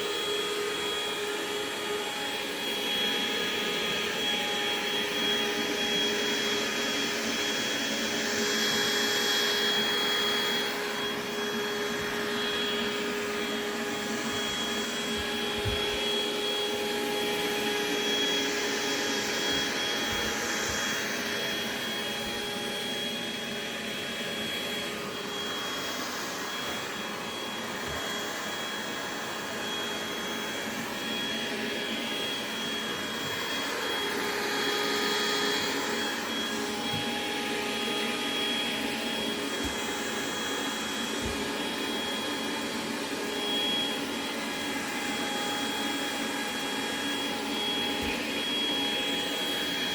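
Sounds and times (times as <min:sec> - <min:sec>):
robot vacuum cleaner running: 0:00.0 - 0:49.9.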